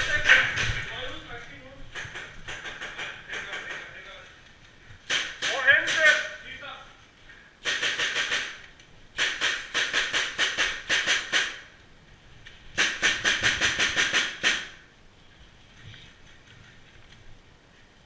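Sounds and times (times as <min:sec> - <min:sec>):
airsoft gun firing full auto: 0:07.6 - 0:08.6, 0:09.2 - 0:11.6, 0:12.8 - 0:14.8.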